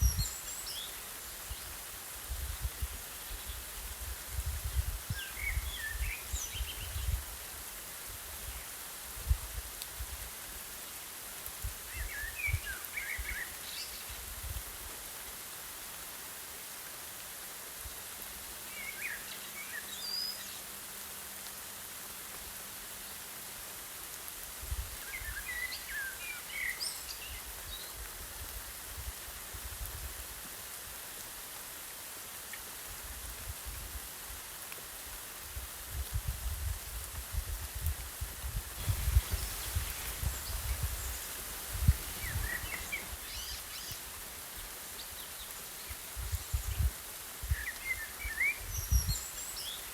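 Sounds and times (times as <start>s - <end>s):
rain hissing: 0.0s - 49.9s
rumbling gusts of breeze: 35.6s - 44.0s.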